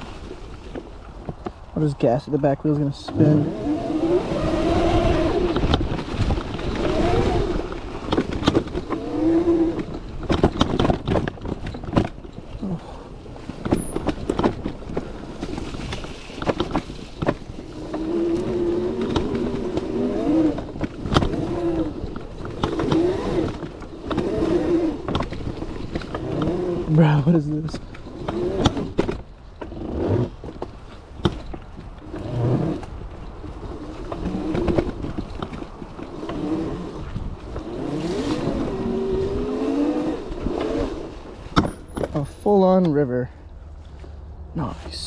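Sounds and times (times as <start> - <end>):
knocks and rattles on rough ground: 0.0 - 45.0
electric motorbike motor whining: 3.1 - 10.7, 17.6 - 27.0.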